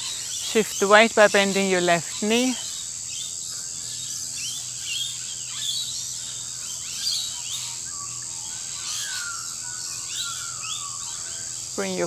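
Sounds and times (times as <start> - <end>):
birds chirping and calling: 0.0 - 12.0
high-pitched insect drone: 0.0 - 12.0.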